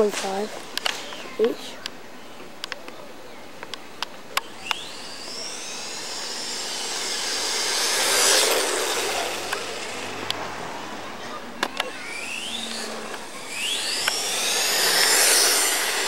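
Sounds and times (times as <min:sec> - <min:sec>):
sharp clicks: 0:03.6 - 0:05.0, 0:11.6 - 0:16.0
electric motor whining: 0:03.7 - 0:16.0.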